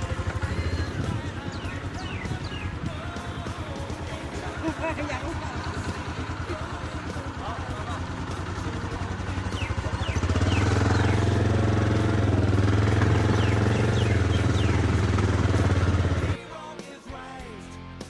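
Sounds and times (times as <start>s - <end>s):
motorcycle engine running: 0.0s - 16.4s.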